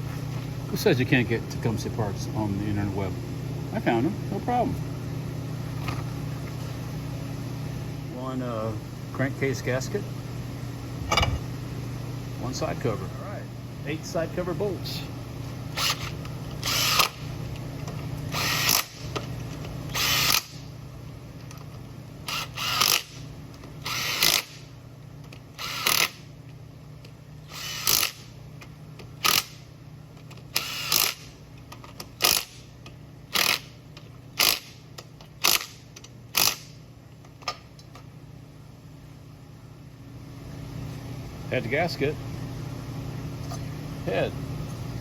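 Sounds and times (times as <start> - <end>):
power driver bursts: 15.8 - 17.2, 30.5 - 31.3.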